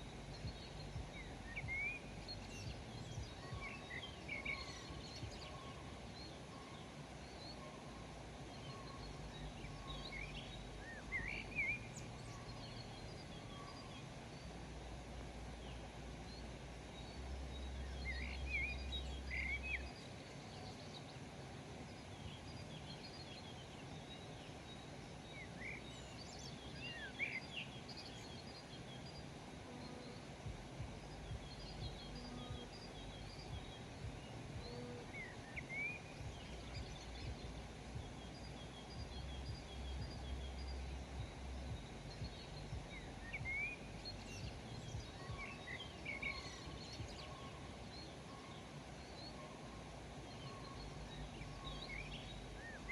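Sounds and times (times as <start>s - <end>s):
steady background hiss: 0.0s - 52.9s
bird chirps and calls: 22.3s - 52.9s
low rumble: 30.4s - 35.1s, 36.2s - 45.4s.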